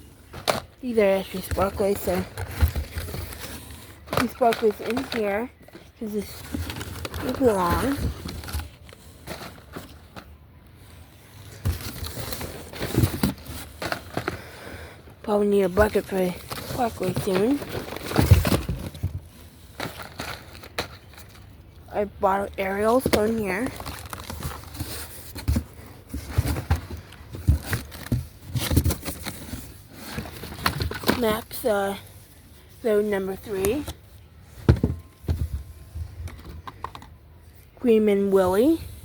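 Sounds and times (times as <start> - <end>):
fireworks packs being handled: 0.0 - 39.0.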